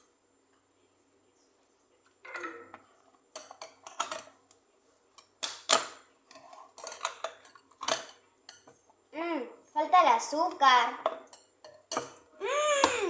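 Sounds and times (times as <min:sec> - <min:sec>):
dishes and cutlery clinking: 0:02.3 - 0:04.5, 0:05.1 - 0:08.9, 0:11.0 - 0:12.3.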